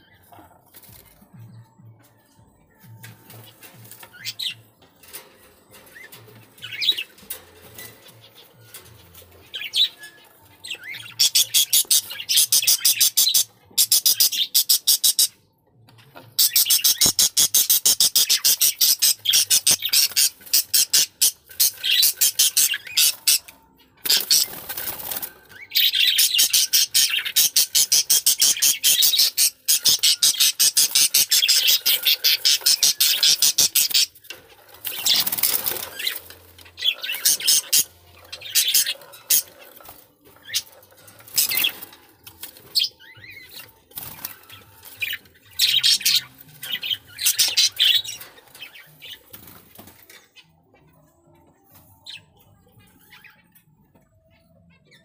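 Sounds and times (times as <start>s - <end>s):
budgerigars chirping and chattering: 2.7s - 55.0s.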